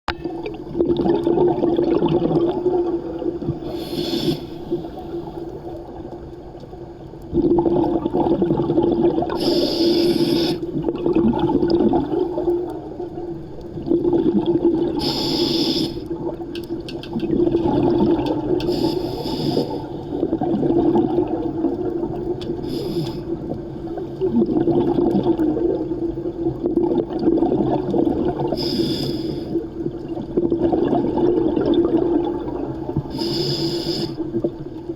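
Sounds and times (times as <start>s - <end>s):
regulator hissing inhale: 3.6s - 5.6s, 9.4s - 10.8s, 15.0s - 16.1s, 18.6s - 20.1s, 22.6s - 23.4s, 28.6s - 29.6s, 33.1s - 34.4s
bubbling exhales: 7.4s - 12.9s, 17.1s - 26.0s.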